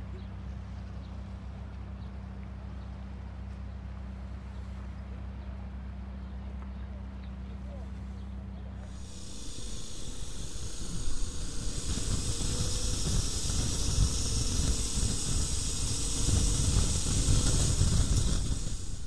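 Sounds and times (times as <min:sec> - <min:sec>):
road hiss: 0:07.6 - 0:19.0
wind buffeting: 0:08.8 - 0:19.0
wind rush: 0:08.8 - 0:19.0.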